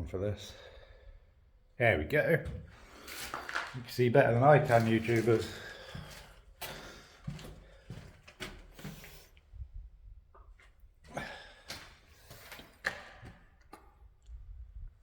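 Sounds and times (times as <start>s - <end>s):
footsteps with knocks and scuffs: 2.4s - 9.4s, 10.4s - 14.0s.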